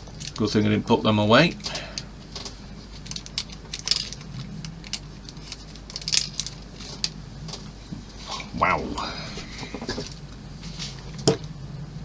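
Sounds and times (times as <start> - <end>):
small plastic parts clicking: 3.0 - 7.2.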